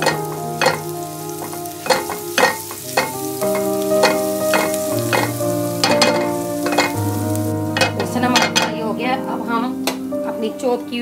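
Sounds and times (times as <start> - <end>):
spatula scraping a pan: 0.0 - 8.7
garlic sizzling in oil: 0.0 - 11.0.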